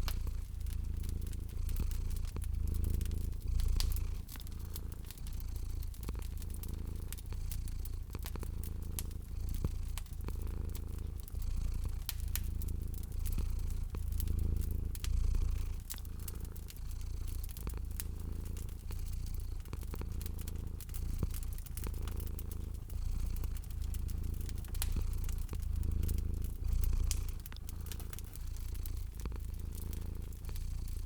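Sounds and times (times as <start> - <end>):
cat purring: 0.0 - 31.0
wood fire crackling: 0.0 - 31.0.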